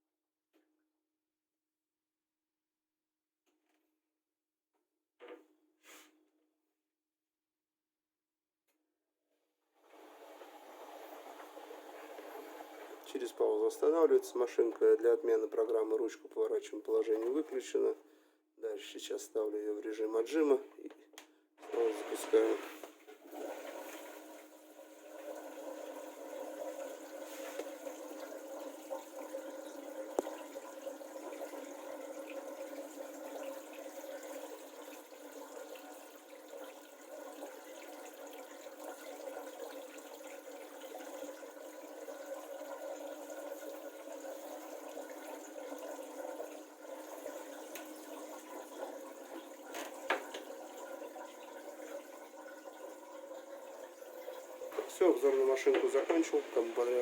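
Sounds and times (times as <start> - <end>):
washing machine spinning: 9.8 - 14.3, 21.6 - 57.0
water running: 9.8 - 18.0, 21.6 - 57.0.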